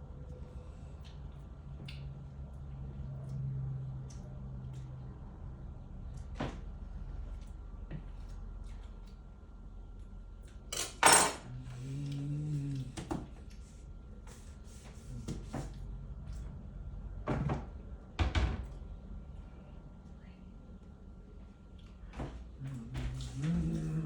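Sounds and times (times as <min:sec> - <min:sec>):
wavering voice-like hum: 0:11.4 - 0:13.1, 0:22.5 - 0:24.0.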